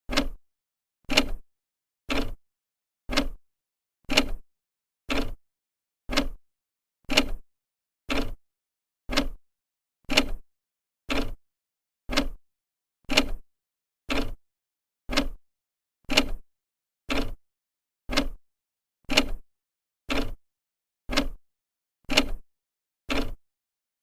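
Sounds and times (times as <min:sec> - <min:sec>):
clock ticking: 0:00.1 - 0:00.4, 0:02.1 - 0:02.4, 0:03.1 - 0:03.4, 0:05.1 - 0:05.4, 0:06.1 - 0:06.4, 0:08.1 - 0:08.4, 0:09.1 - 0:09.4, 0:11.1 - 0:11.4, 0:12.1 - 0:12.4, 0:14.1 - 0:14.4, 0:15.1 - 0:15.4, 0:17.1 - 0:17.4, 0:18.1 - 0:18.4, 0:19.1 - 0:19.4, 0:20.1 - 0:20.4, 0:21.1 - 0:21.4, 0:22.1 - 0:22.4, 0:23.1 - 0:23.4.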